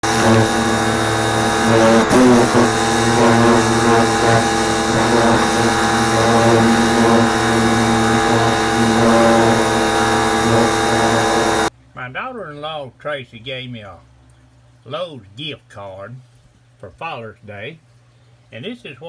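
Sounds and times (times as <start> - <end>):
droning intro music: 0.0 - 11.7.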